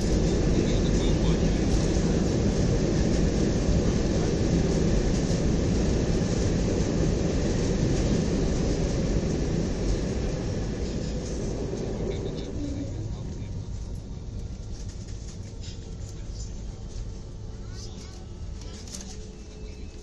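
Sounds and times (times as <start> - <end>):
rushing air: 0.0 - 13.0
airliner cabin engine rumble: 0.0 - 20.0.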